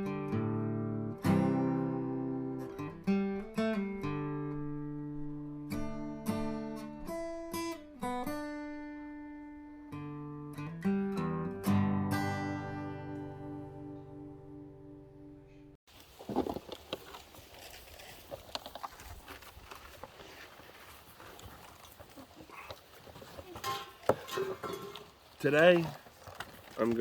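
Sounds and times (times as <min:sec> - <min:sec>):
acoustic guitar strumming: 0:00.0 - 0:15.4.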